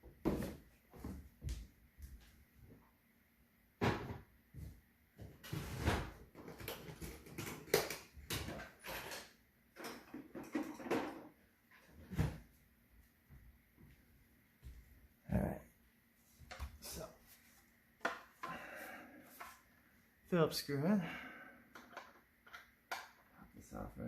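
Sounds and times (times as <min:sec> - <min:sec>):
knocks and clatter of rummaging: 0:05.2 - 0:12.4
doors or drawers opening and shutting: 0:05.4 - 0:12.4.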